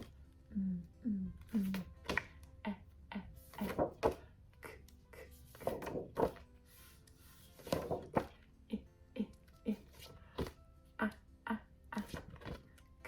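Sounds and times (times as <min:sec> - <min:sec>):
faint music: 0:00.0 - 0:13.0.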